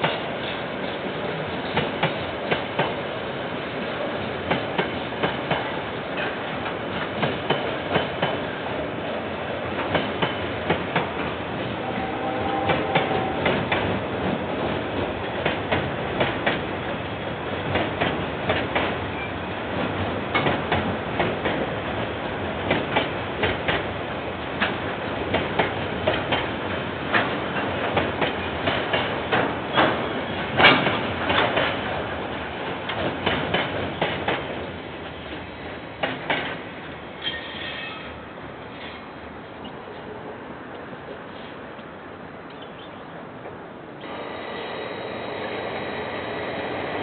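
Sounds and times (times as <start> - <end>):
train wagons rolling past: 0.0 - 47.0
wheels clacking over rail joints: 9.7 - 38.1.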